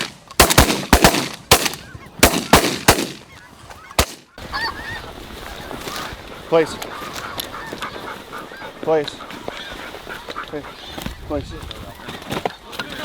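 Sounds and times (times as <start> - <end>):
shotgun blasts: 0.0 - 3.3, 4.0 - 4.3
geese honking: 1.0 - 11.2.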